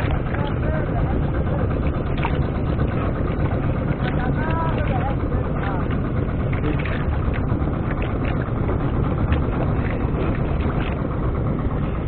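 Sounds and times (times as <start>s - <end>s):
boat engine running: 0.0s - 12.0s
wind buffeting microphone: 0.0s - 12.0s.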